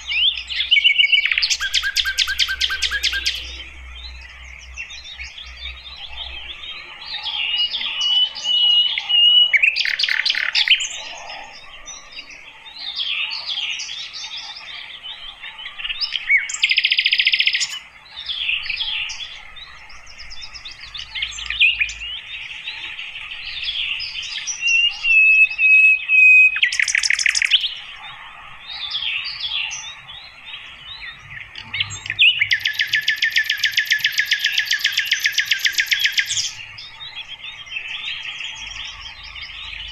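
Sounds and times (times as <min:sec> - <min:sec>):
flycatcher singing: 0:00.0 - 0:39.9.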